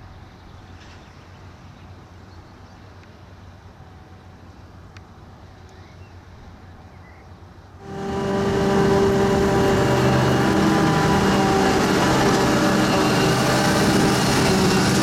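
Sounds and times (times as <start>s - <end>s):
distant diesel machinery running: 7.8s - 15.0s.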